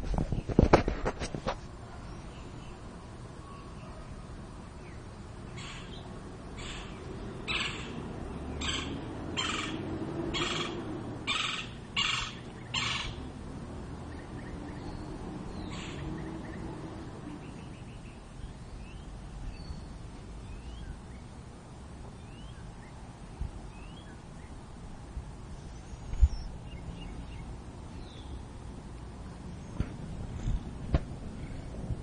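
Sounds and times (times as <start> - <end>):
woodpecker rasping calls: 5.6 - 6.0, 6.6 - 13.2, 15.6 - 16.6.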